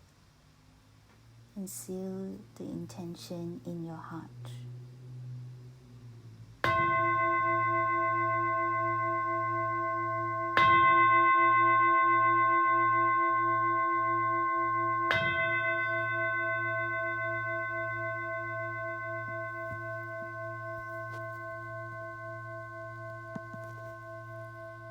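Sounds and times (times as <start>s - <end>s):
singing bowl ringing: 6.6s - 24.9s.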